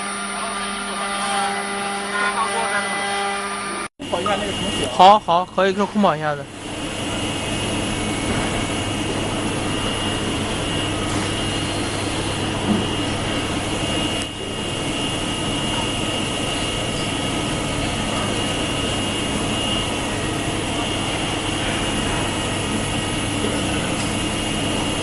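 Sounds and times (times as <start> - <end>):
wood router machine whining: 0.0 - 5.0.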